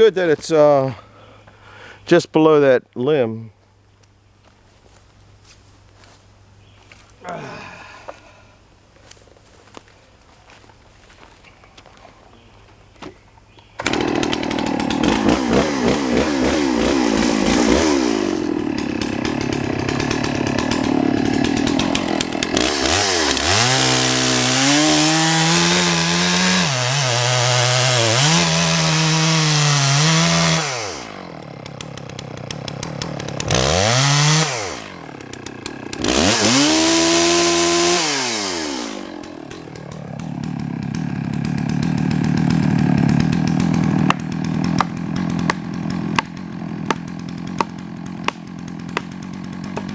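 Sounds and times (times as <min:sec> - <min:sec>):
chainsaw cutting log: 0:13.8 - 0:49.9.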